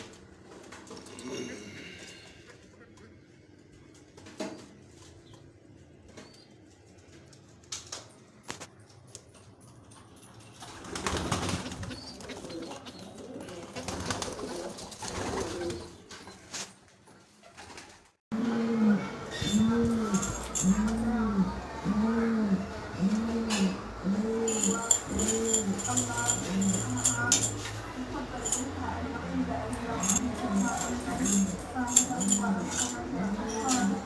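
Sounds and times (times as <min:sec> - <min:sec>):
pigeons cooing: 0:10.8 - 0:16.2, 0:18.4 - 0:34.0.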